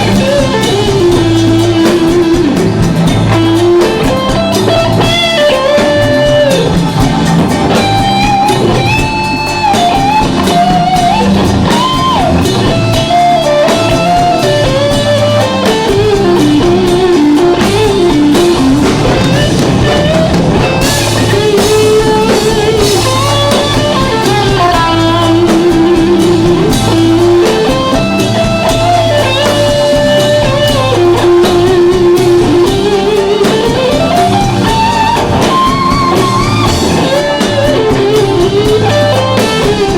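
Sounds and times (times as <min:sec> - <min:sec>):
lead electric guitar melody: 0:00.0 - 0:39.9
live rock band playing: 0:00.0 - 0:39.9.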